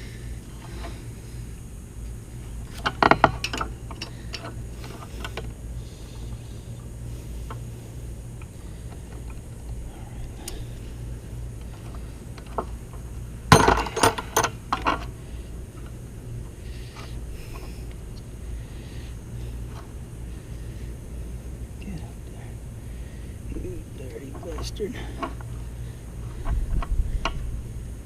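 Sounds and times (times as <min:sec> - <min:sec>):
low hum: 0:00.0 - 0:28.0
metal tools clinking on engine parts: 0:13.5 - 0:15.1.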